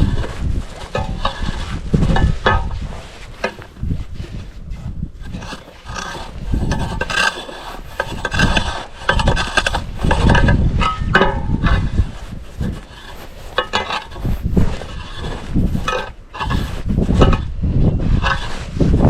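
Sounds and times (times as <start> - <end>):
snow tool scraping ice: 0.0 - 19.0.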